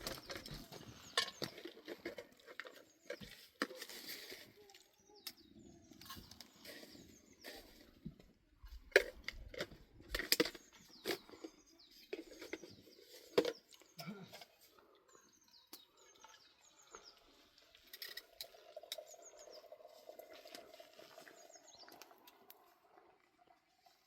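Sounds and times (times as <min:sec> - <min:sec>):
small birds chirping: 0:00.0 - 0:08.8, 0:09.8 - 0:23.5.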